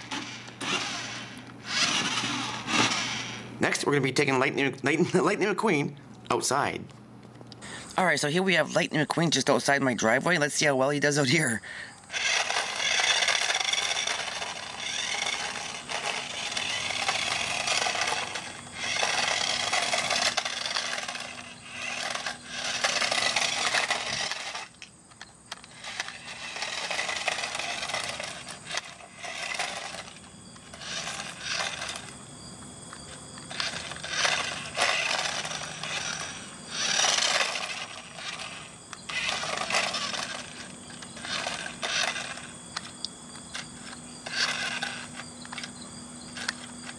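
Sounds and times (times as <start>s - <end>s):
toy car wheels scraping pavement: 0.0s - 3.4s, 12.1s - 32.2s, 32.9s - 46.9s
small electric motor running: 0.0s - 3.5s, 12.1s - 46.9s.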